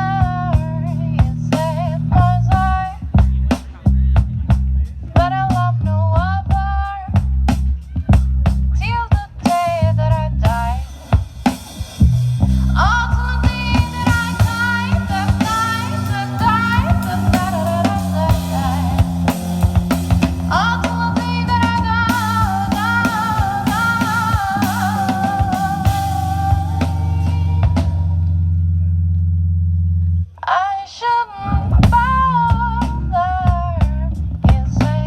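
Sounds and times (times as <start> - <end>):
sustained bass: 0.0 - 30.5, 31.4 - 35.0
drum kit hits: 13.4 - 28.2.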